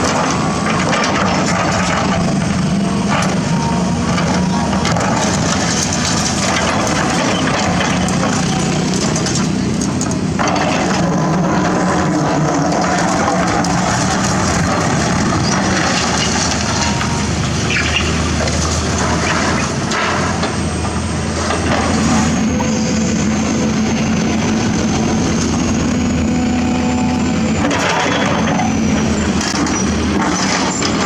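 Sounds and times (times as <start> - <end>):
diesel engine running: 0.0 - 31.0
scraping and crunching from digging: 4.2 - 20.5
hydraulic whine: 19.0 - 31.0.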